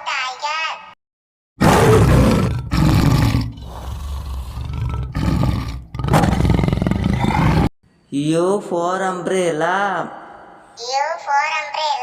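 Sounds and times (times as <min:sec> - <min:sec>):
tiger roaring and growling: 0:01.6 - 0:07.7.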